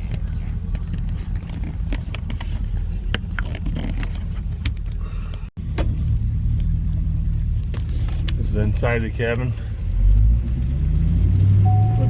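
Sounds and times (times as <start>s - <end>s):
car exhaust drone from cabin: 9.6s - 12.0s.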